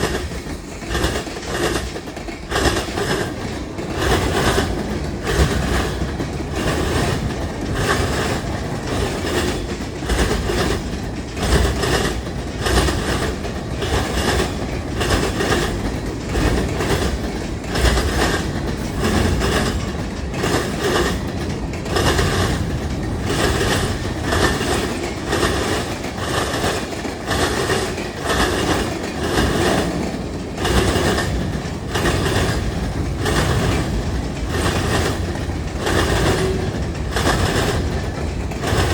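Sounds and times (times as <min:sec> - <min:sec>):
freight train rolling past: 0:00.0 - 0:38.9
wheels clicking over rail joints: 0:00.0 - 0:38.9.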